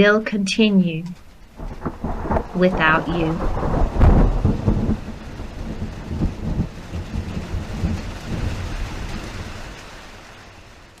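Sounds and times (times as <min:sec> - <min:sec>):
steady rain: 0:00.0 - 0:11.0
rolling thunder: 0:01.2 - 0:11.0.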